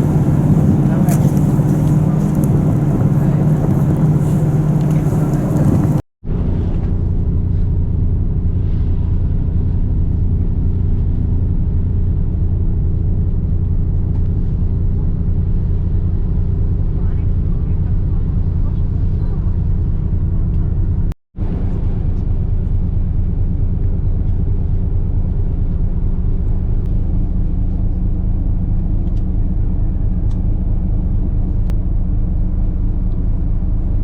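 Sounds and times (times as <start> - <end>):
duller drone: 0.0 - 10.4
ship engine drone: 0.0 - 34.0.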